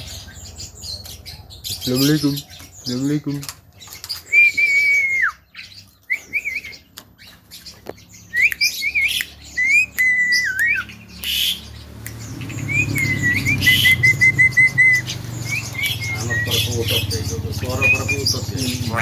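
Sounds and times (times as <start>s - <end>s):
myna whistling: 4.2s - 6.9s, 8.3s - 19.0s
bird clicks: 6.9s - 13.8s
harsh bird squawks: 8.4s - 19.0s.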